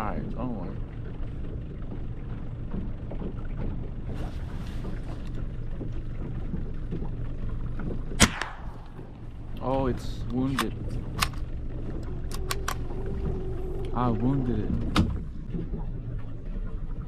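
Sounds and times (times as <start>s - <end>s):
boat engine rumble: 0.0s - 17.0s
rifle shot: 8.2s - 9.0s.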